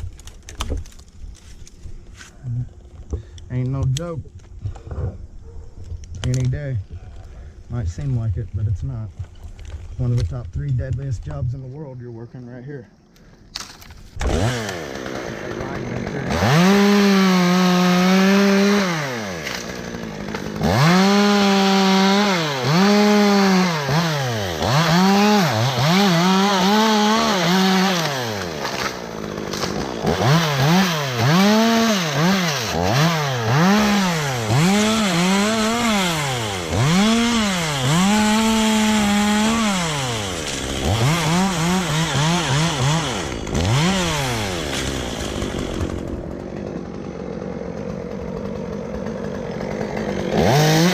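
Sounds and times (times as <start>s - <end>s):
chainsaw revving while cutting wood: 14.2s - 50.9s.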